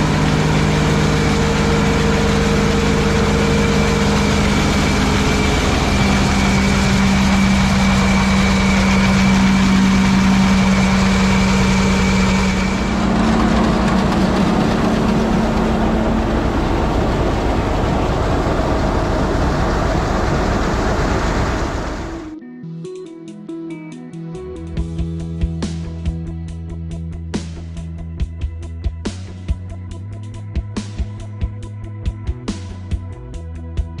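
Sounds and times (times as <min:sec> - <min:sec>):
thin high whine: 0:00.0 - 0:22.4
tractor engine running: 0:00.0 - 0:22.4.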